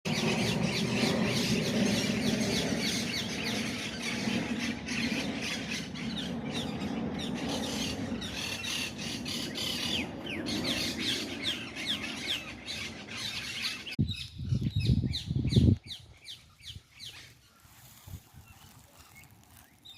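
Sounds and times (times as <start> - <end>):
flock of birds chattering: 0.1 - 14.0, 15.9 - 19.9
steady low hum: 0.1 - 14.0.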